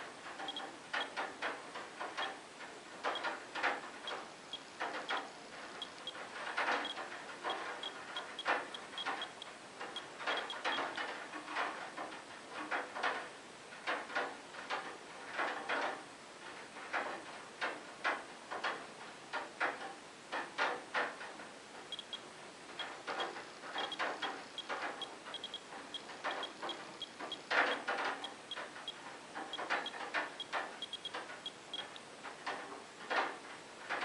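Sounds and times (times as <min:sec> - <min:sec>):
dosimeter high chirps: 0:23.8 - 0:27.2, 0:29.5 - 0:31.1.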